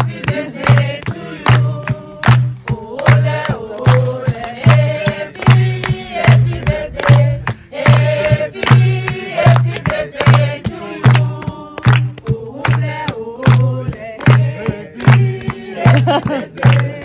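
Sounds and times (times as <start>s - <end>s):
group singing in chorus: 0.0s - 17.0s
sharp claps: 0.0s - 17.0s
steady drum beat: 0.0s - 17.0s.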